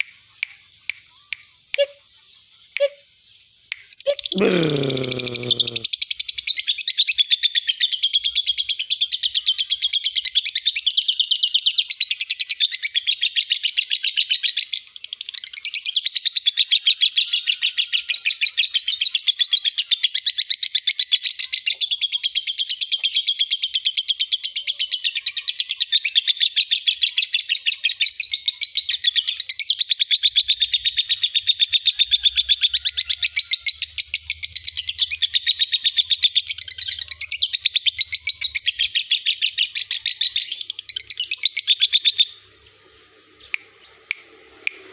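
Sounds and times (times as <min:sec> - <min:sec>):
lovebird chattering trill: 0:03.9 - 0:05.9.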